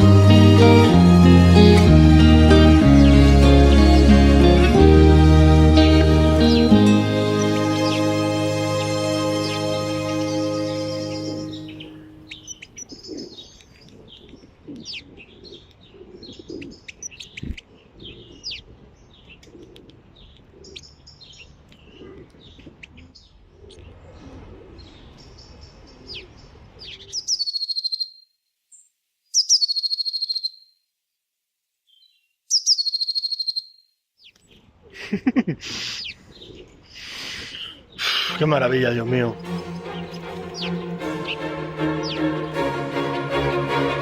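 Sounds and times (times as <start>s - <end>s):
songbirds chirping: 0.0s - 30.7s, 31.8s - 35.0s, 35.7s - 44.0s
loud falling bird calls: 39.3s - 43.1s.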